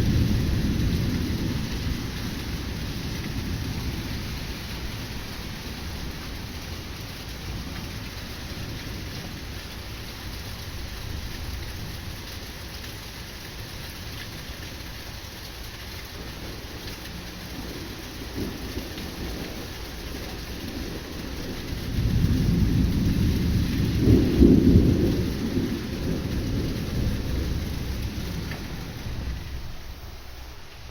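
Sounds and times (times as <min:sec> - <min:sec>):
thunder rolling: 0:00.0 - 0:09.5, 0:16.1 - 0:30.9
steady rain: 0:00.0 - 0:30.9.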